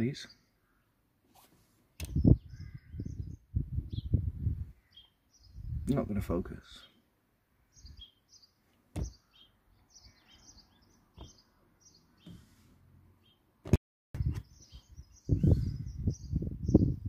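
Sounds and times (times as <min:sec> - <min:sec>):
small birds chirping: 0:00.0 - 0:17.0
sharp clicks and knocks: 0:09.0 - 0:09.2, 0:11.2 - 0:11.4.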